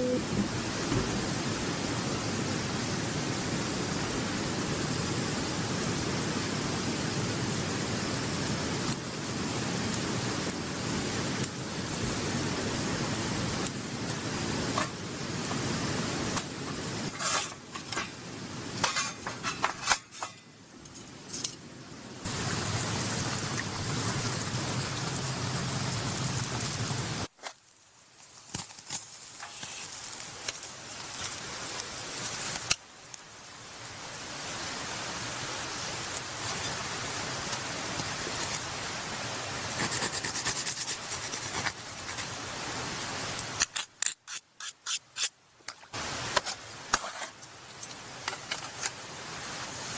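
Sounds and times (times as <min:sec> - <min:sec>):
meat sizzling on a grill: 0:22.3 - 0:33.9, 0:35.4 - 0:38.7.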